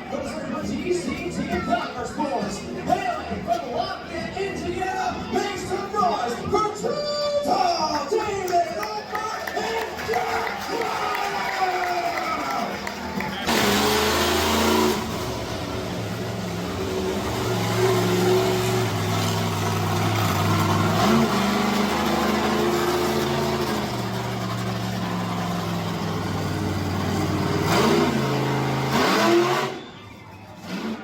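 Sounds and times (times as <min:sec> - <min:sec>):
monster truck engine revving: 0:11.8 - 0:31.0.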